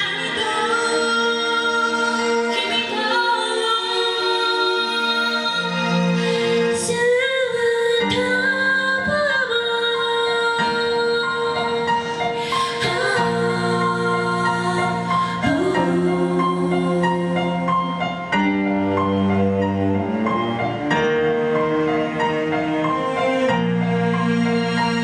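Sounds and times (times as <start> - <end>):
woman singing: 0.0 - 18.3
instrumental accompaniment: 0.0 - 25.0.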